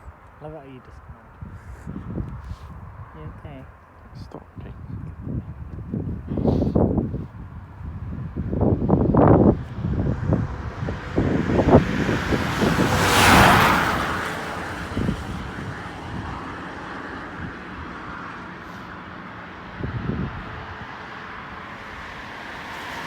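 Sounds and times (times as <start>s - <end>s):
wind buffeting microphone: 0.0s - 23.0s
vehicle passing close by: 8.0s - 23.0s.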